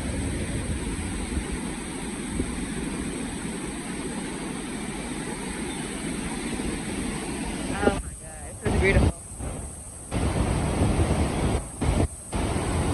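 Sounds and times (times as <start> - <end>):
waterfall rushing: 10.1 - 12.9.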